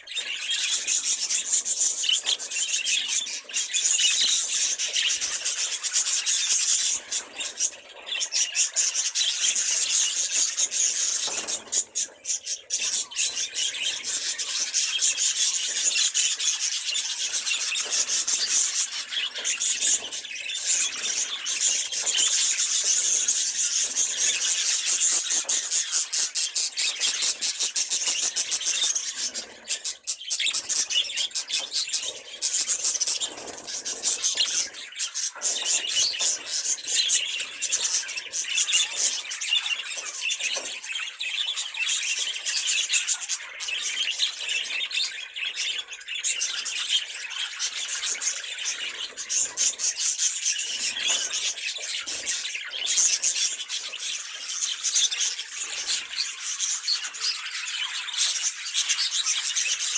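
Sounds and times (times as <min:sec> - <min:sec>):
budgerigars warbling: 0:00.0 - 0:59.9.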